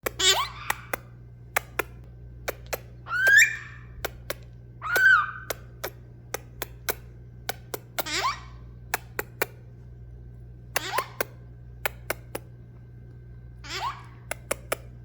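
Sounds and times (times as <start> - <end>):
parrot calls gliding in pitch: 0.2 - 0.9, 3.0 - 4.0, 4.8 - 5.5, 8.0 - 8.6, 13.6 - 14.2.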